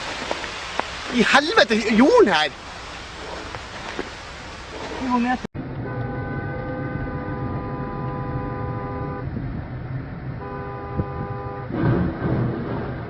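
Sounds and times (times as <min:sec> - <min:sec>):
engine and road rumble: 0:00.0 - 0:13.0
vehicle horn blasts: 0:05.8 - 0:09.4, 0:10.4 - 0:11.7.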